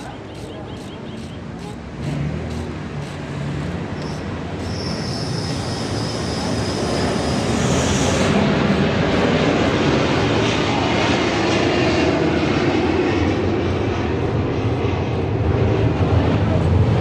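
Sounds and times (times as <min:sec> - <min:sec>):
diesel engine running: 0:00.0 - 0:17.0
thin high whine: 0:04.0 - 0:11.2.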